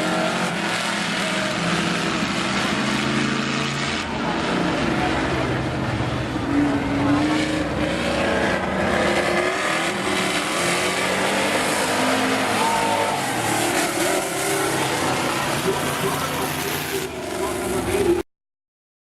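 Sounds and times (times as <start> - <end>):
car engines racing around: 0.0 - 18.2.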